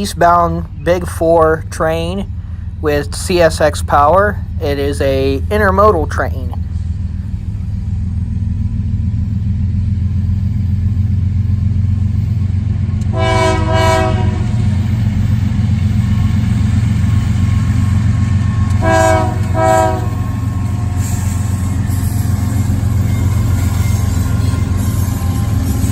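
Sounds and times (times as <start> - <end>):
freight train rumbling past: 0.0 - 25.9
locomotive air horn blasts: 13.0 - 14.7, 18.6 - 22.1.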